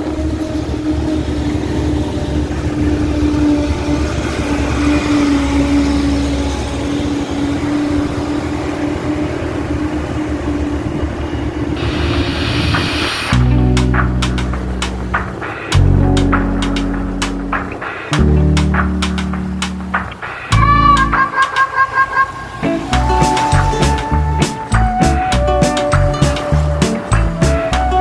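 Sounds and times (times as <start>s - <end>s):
truck engine rumbling: 0.0s - 28.0s
hiss: 11.8s - 13.4s
music: 12.7s - 21.8s, 22.6s - 28.0s.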